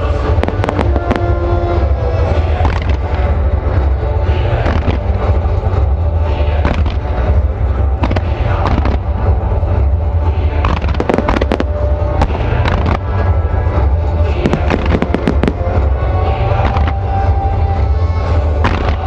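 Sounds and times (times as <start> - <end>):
fireworks bangs and crackling: 0.0 - 3.5, 4.5 - 5.5, 6.6 - 9.5, 10.4 - 17.3, 18.3 - 19.0
low rumble: 0.0 - 19.0
music: 0.0 - 19.0.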